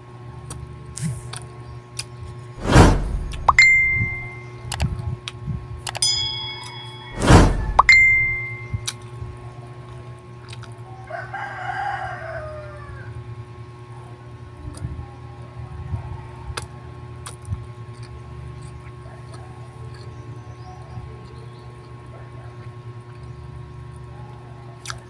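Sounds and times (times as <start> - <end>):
steady low hum: 2.4 - 10.2
rooster crowing: 10.9 - 13.2.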